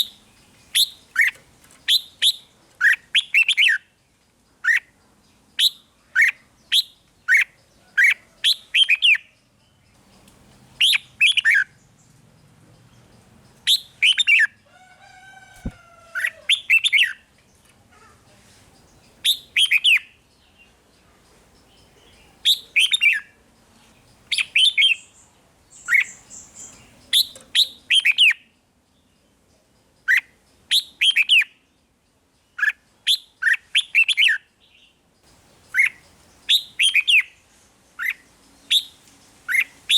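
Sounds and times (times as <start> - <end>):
rising bird call: 13.7 - 17.1
bird whistled notes: 35.8 - 37.4.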